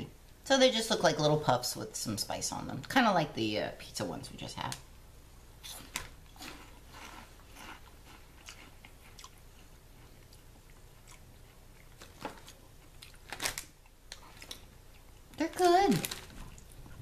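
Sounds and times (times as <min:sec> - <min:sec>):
people chewing crunchy snacks: 0:05.6 - 0:15.4.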